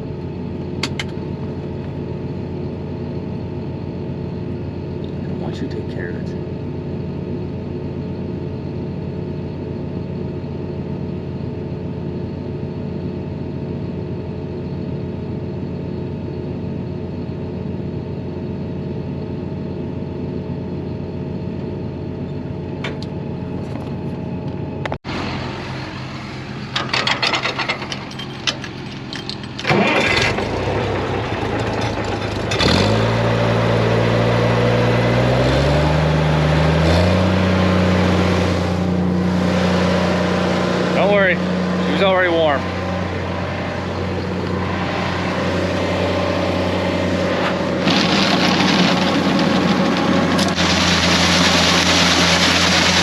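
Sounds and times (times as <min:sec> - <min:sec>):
tractor engine running: 0:00.0 - 0:53.0
clanks and clicks: 0:00.8 - 0:01.2, 0:26.7 - 0:30.6.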